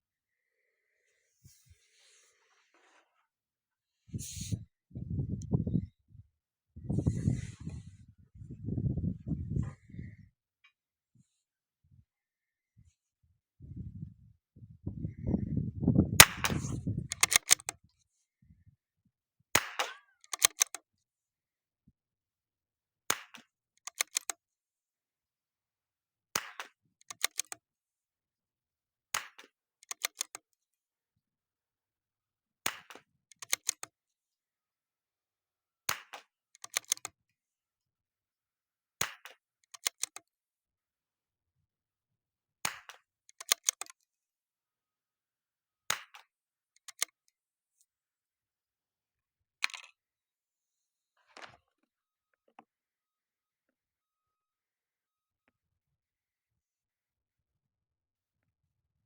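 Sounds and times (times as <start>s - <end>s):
rifle bolt metallic clicks: 16.2s - 17.7s, 19.6s - 20.8s, 23.8s - 24.4s, 27.0s - 27.6s, 29.8s - 30.4s, 33.3s - 33.9s, 36.6s - 37.1s, 39.7s - 40.2s, 42.7s - 44.0s, 46.8s - 47.2s.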